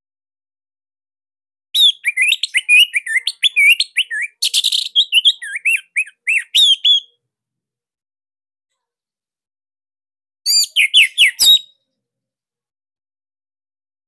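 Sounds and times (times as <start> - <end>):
thrush singing whistled notes: 1.8 - 7.1, 10.5 - 11.8.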